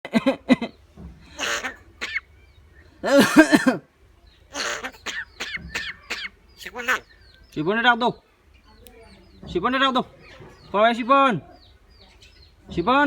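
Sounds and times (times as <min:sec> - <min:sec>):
myna bird calling: 0:00.5 - 0:13.0
rasping bird call: 0:01.3 - 0:03.5, 0:04.5 - 0:07.3
falling bird chirps: 0:04.3 - 0:13.0.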